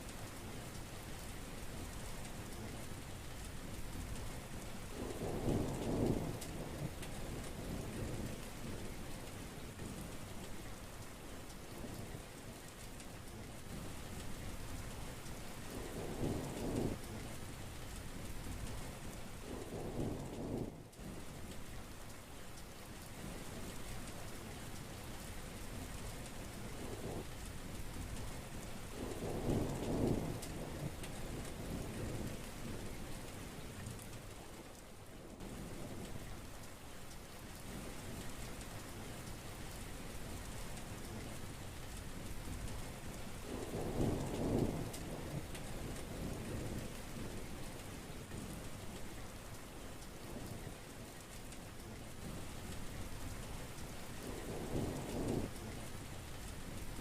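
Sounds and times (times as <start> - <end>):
heavy rain falling: 0.0 - 57.0
thunder rumbling: 28.9 - 33.1, 42.4 - 49.3, 54.2 - 57.0.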